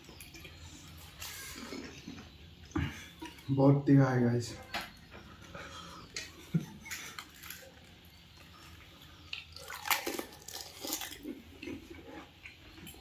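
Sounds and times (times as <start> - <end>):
wet chewing: 4.9 - 13.0
crisp shells crunching: 9.3 - 11.8.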